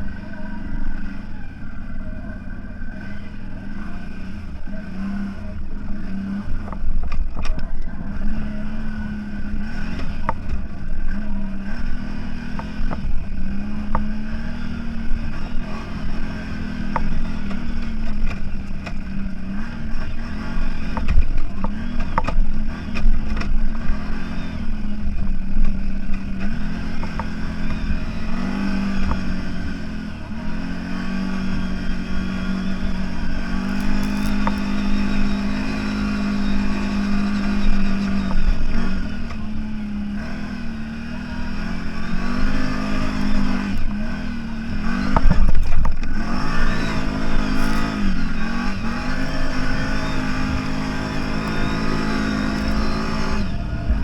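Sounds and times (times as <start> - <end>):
off-road vehicle engine working hard: 0.0 - 54.0
vehicle knocks and clatter: 20.8 - 23.8, 45.0 - 46.6.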